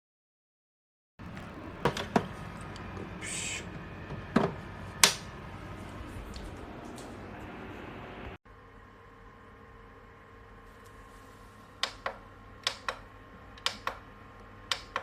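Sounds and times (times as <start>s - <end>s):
short hiss: 3.2s - 3.7s.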